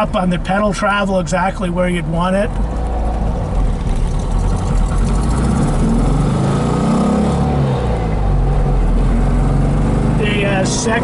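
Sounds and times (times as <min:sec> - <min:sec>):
car engine accelerating: 0:02.4 - 0:11.0.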